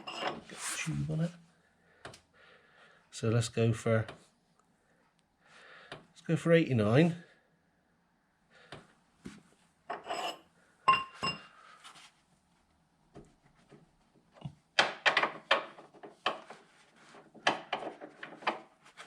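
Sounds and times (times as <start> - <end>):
sharp knocks and clicks: 17.4 - 18.7.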